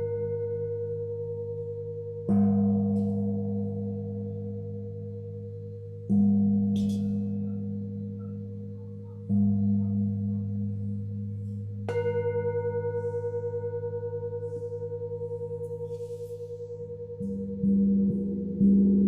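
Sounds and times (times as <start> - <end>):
singing bowls ringing: 0.0 - 19.0.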